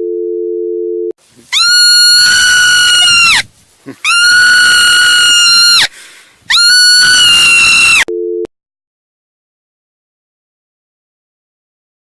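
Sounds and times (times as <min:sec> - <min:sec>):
long high-pitched screams: 0:01.5 - 0:08.1.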